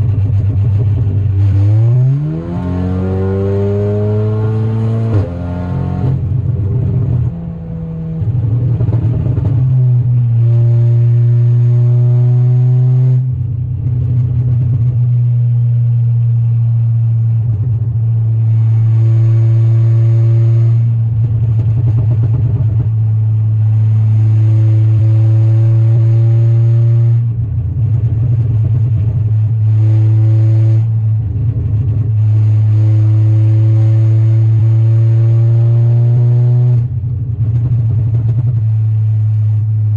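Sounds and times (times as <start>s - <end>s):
steady low drone: 0.0s - 39.9s
car engine revving through gears: 1.0s - 13.3s, 31.6s - 36.9s.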